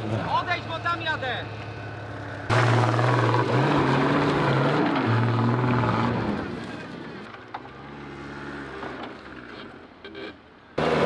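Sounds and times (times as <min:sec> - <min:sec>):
engine revving hard: 0:02.5 - 0:06.4, 0:10.8 - 0:11.0.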